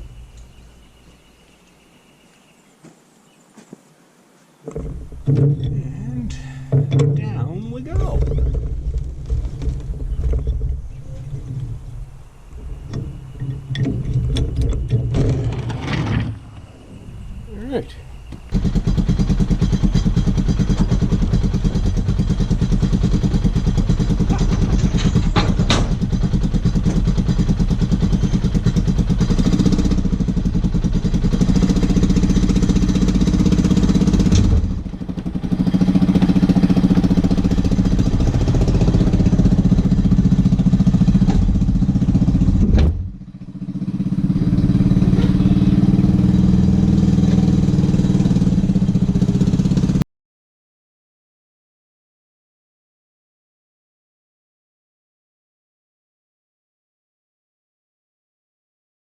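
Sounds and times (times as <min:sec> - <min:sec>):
side-by-side engine running: 0:04.7 - 0:15.4, 0:18.4 - 0:50.0.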